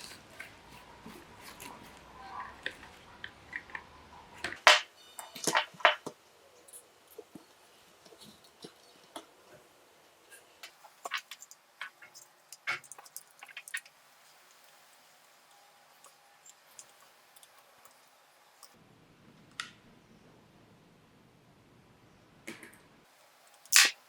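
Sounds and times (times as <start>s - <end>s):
sharp clicks of model car: 23.6s - 24.0s.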